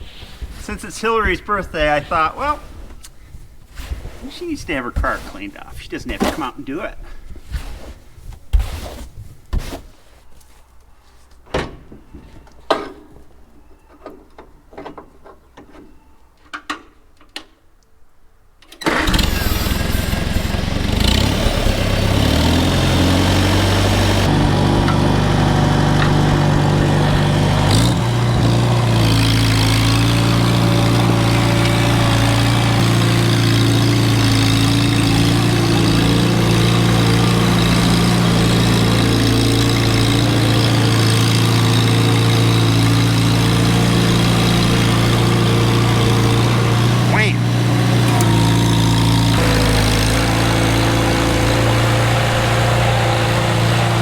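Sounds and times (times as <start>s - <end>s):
engine running steadily: 18.9s - 54.0s.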